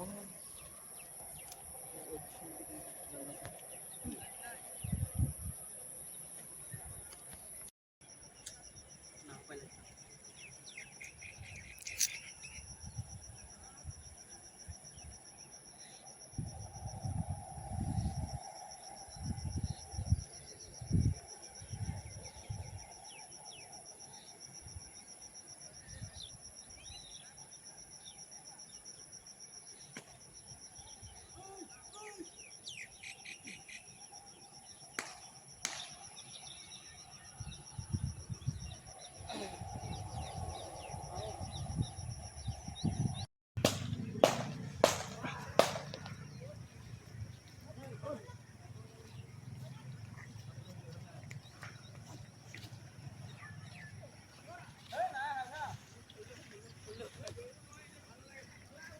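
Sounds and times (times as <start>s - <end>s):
crickets chirring: 0.0s - 58.9s
short bird chirps: 10.8s - 12.7s
high insect trilling: 11.0s - 13.0s
sharp clicks: 43.6s - 46.2s.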